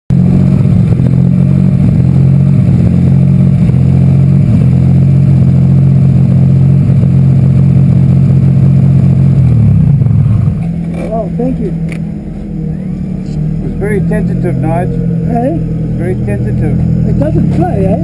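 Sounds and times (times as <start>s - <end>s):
racing car engine running: 0.1s - 18.0s.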